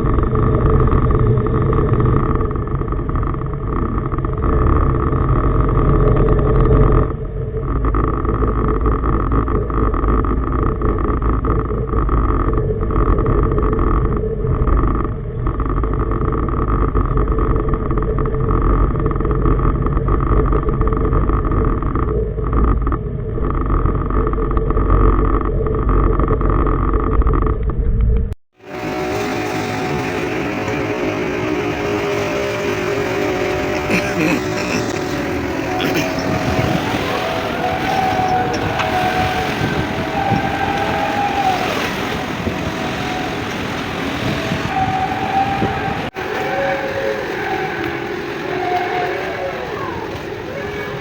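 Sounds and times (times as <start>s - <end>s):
diesel engine droning: 0.0s - 51.0s.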